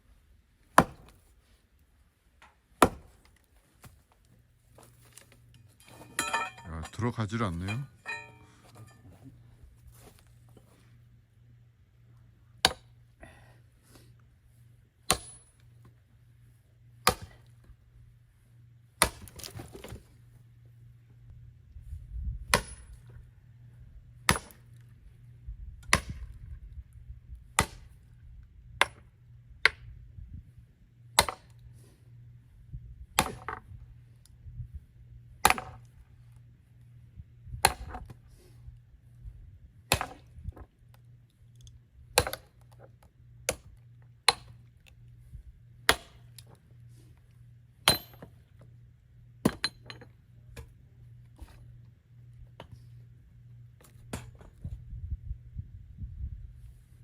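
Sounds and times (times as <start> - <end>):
axe striking a log: 0.7 - 1.2, 2.8 - 3.2, 12.6 - 12.9, 15.1 - 15.6, 17.0 - 17.4, 19.0 - 20.0, 22.5 - 23.0, 24.3 - 24.7, 25.9 - 26.3, 27.6 - 27.9, 31.2 - 31.6, 33.2 - 33.6, 35.4 - 35.8, 37.6 - 38.1, 39.9 - 40.3, 42.2 - 42.6, 44.3 - 44.6, 45.9 - 46.3, 47.8 - 48.4
metallic clink: 5.5 - 7.0, 7.6 - 9.1.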